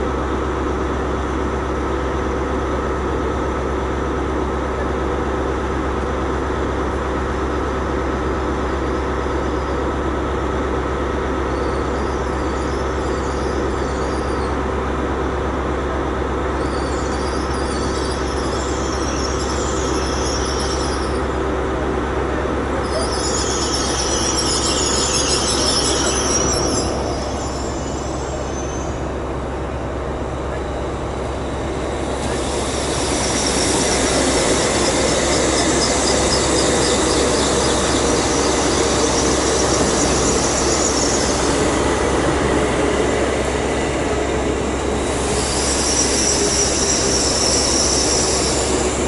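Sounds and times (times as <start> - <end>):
train running with steady hum: 0.0 - 49.0
wavering wheel squeal: 16.6 - 21.4, 22.8 - 29.2, 32.3 - 42.9, 45.1 - 49.0.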